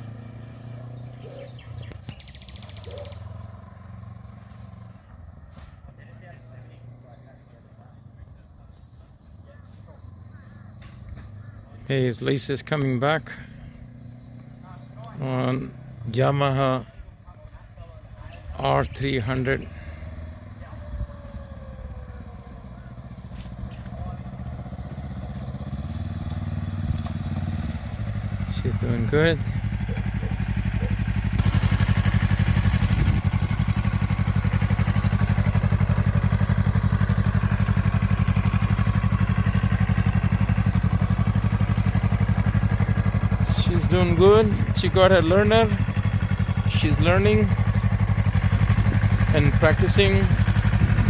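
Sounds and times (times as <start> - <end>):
engine humming: 0.0 - 51.0
bird trilling: 0.1 - 5.2, 9.9 - 11.8.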